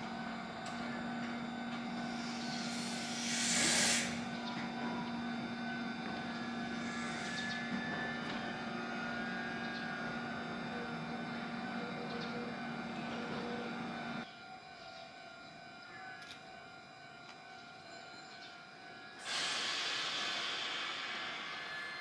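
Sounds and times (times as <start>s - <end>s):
electric train humming: 0.0s - 22.0s
loud steady hiss: 2.0s - 4.4s, 19.2s - 21.9s.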